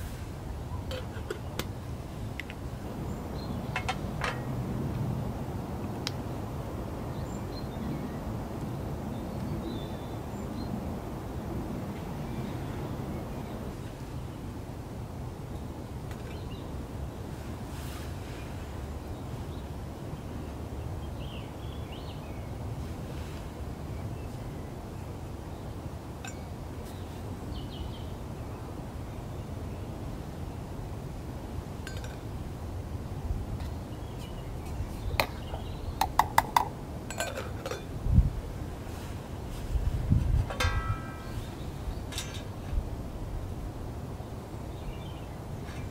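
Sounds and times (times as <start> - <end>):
wind buffeting microphone: 0.0 - 14.4, 32.4 - 45.9.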